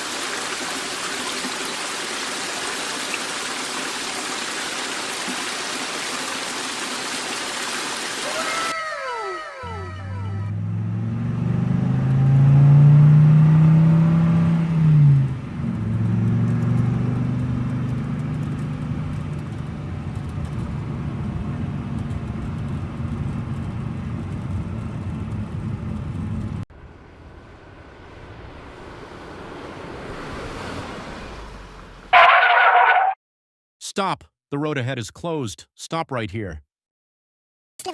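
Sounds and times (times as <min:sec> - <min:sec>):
vehicle engine revving: 0:09.9 - 0:19.4
quieter engine sound: 0:19.1 - 0:32.1.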